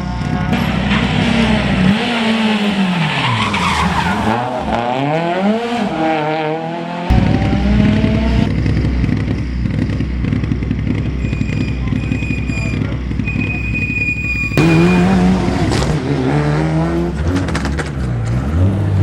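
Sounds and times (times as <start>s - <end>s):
rally car engine revving: 0.0s - 19.0s
low rumble: 0.5s - 3.1s, 7.1s - 11.8s.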